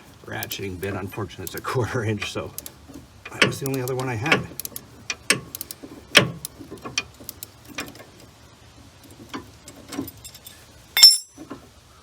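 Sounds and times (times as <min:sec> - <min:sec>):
ratchet clicking on metal: 0:00.3 - 0:08.3
ringing metallic clink: 0:11.0 - 0:11.4.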